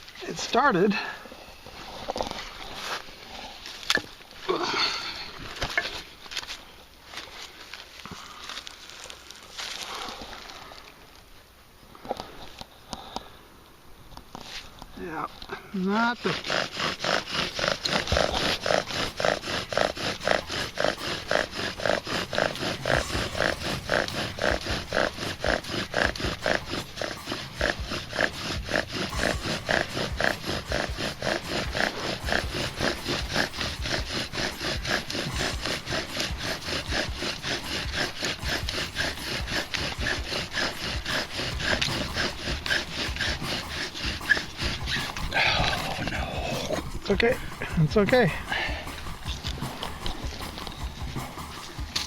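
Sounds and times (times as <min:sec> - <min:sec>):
wooden spindle squeaking and grinding: 0:00.0 - 0:09.8, 0:14.2 - 0:52.0
bow drill strokes: 0:14.3 - 0:52.0.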